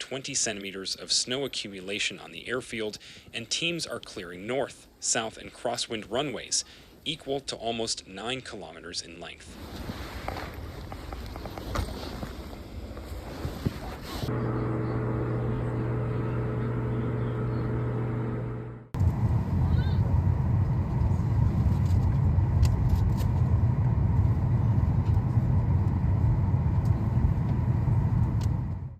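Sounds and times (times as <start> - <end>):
rough low vehicle rumble: 9.6 - 28.9
vehicle engine humming: 14.2 - 28.9.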